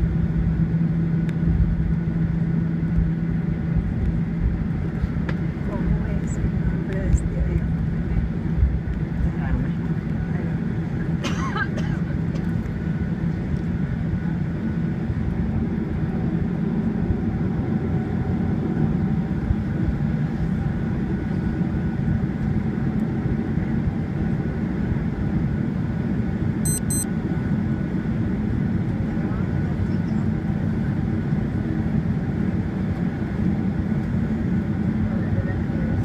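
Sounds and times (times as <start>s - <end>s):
airliner cabin rumble: 0.0s - 36.0s
faint steady whine: 26.6s - 27.1s.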